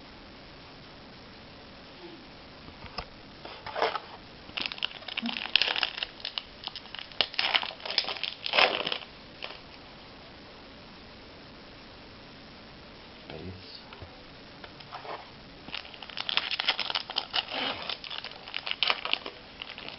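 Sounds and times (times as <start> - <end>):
wrapper crinkling and crumpling: 3.5 - 9.7, 14.8 - 19.9.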